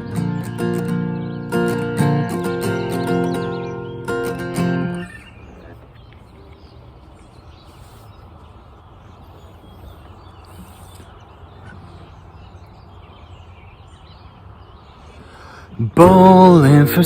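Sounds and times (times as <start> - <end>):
strummed acoustic guitar: 0.0 - 5.5, 15.8 - 17.0
faint short bird calls: 0.0 - 13.0
outdoor background noise: 0.0 - 17.0.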